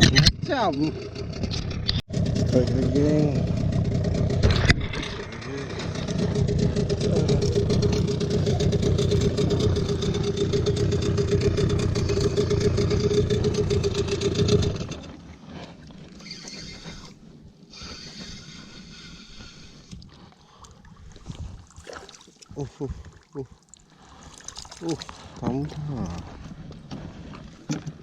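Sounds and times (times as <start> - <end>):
small outboard motor running: 0.0 - 22.2
faint wind and water hiss: 6.9 - 28.0.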